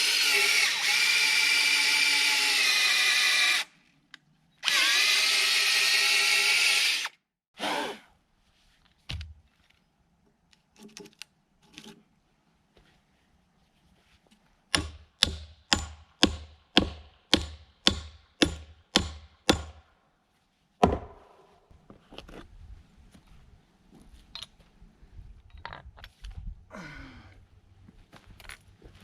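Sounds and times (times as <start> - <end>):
hammer hitting nail into wood: 14.8 - 19.8, 20.8 - 21.3.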